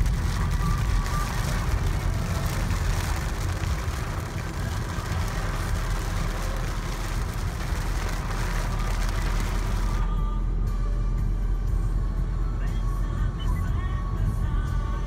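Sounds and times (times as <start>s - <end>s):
rain and wet tyres hissing: 0.0s - 10.1s
car rumbling: 0.0s - 15.0s.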